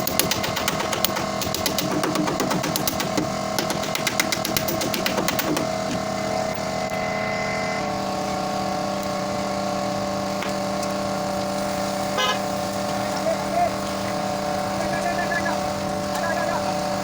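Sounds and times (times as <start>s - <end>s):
rapid rattle of sharp strikes: 0.0s - 6.2s
motor humming: 0.0s - 17.0s.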